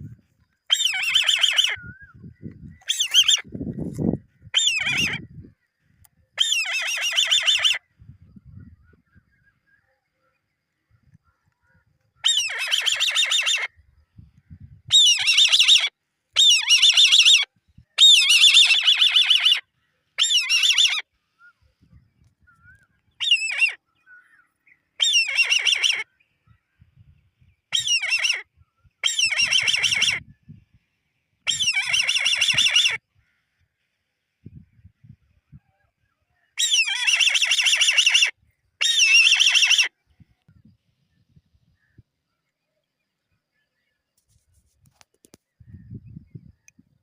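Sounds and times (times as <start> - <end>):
eagle chick chittering squeals: 0.7 - 1.8, 2.8 - 3.5, 4.5 - 5.2, 6.4 - 7.8, 12.2 - 13.7, 14.9 - 19.6, 20.2 - 21.0, 23.2 - 23.8, 25.0 - 26.1, 27.7 - 30.2, 31.5 - 33.0, 36.6 - 39.9.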